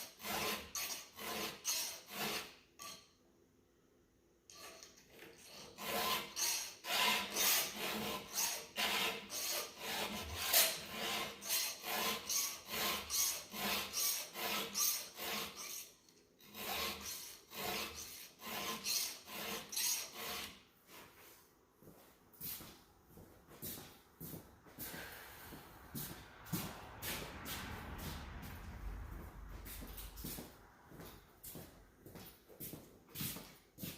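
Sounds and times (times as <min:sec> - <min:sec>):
file scraping chainsaw chain: 0:00.0 - 0:03.1, 0:04.5 - 0:20.6.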